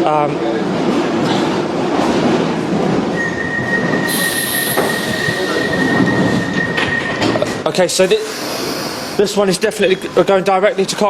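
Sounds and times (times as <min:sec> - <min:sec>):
train wheels rumbling on rails: 0:00.0 - 0:10.4
high-pitched squeal: 0:03.2 - 0:09.3.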